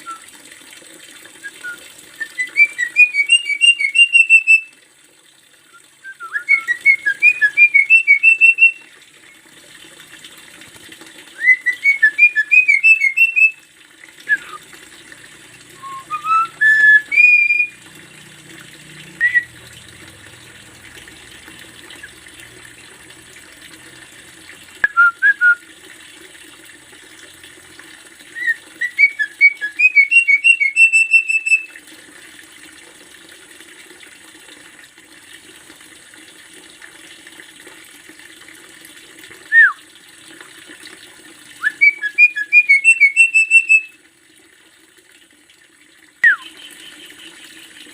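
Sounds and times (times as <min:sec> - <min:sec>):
bird whistling song: 0:00.0 - 0:00.2, 0:01.4 - 0:04.7, 0:05.7 - 0:08.8, 0:11.4 - 0:13.6, 0:14.2 - 0:14.6, 0:15.8 - 0:17.8, 0:19.2 - 0:19.6, 0:24.8 - 0:25.6, 0:28.4 - 0:31.8, 0:39.5 - 0:39.8, 0:41.6 - 0:44.0, 0:46.2 - 0:46.6.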